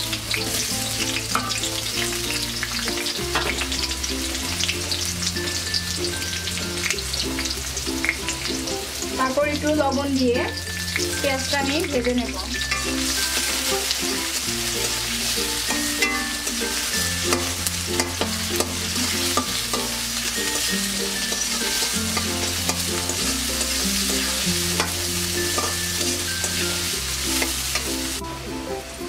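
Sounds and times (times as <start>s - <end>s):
onions sizzling in hot oil: 0.0s - 29.0s
spatula scraping a pan: 12.7s - 27.9s.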